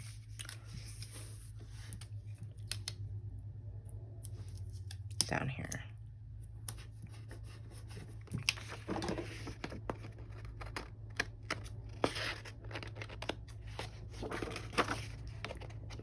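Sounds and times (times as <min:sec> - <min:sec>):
paper rustling: 0:00.0 - 0:02.1, 0:07.8 - 0:16.0
low steady hum: 0:00.0 - 0:16.0.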